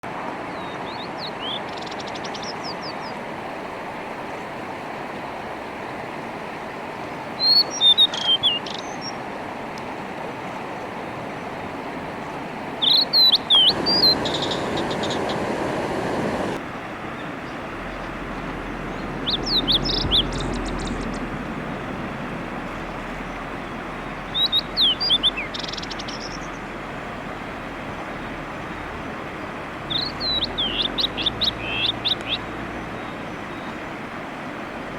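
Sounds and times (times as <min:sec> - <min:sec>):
mountain stream rushing: 0:00.0 - 0:34.9
bird whistling song: 0:07.4 - 0:09.2, 0:12.8 - 0:16.6, 0:18.6 - 0:21.3, 0:24.1 - 0:26.6, 0:29.9 - 0:33.8.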